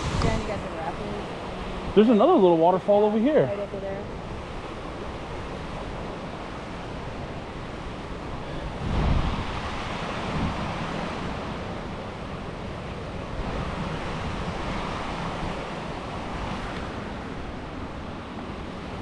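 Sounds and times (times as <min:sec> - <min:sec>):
small waterfall: 0:00.0 - 0:18.5
river rapids rushing: 0:00.0 - 0:19.0
wind gust on microphone: 0:00.0 - 0:19.0.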